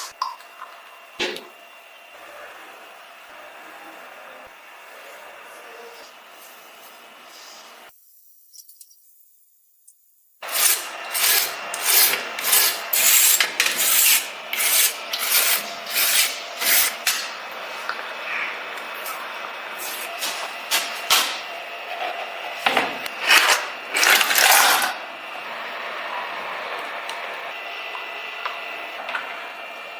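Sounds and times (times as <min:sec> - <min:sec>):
hand file rasping: 0:10.5 - 0:17.0.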